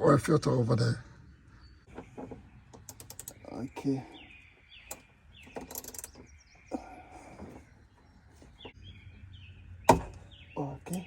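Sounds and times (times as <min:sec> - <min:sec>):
small birds chirping: 0:00.1 - 0:11.0
ratchet clicking: 0:02.8 - 0:03.4, 0:05.6 - 0:06.2.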